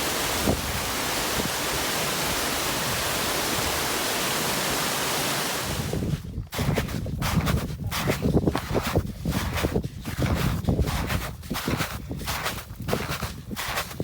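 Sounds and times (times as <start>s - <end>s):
waterfall rushing: 0.0s - 6.1s.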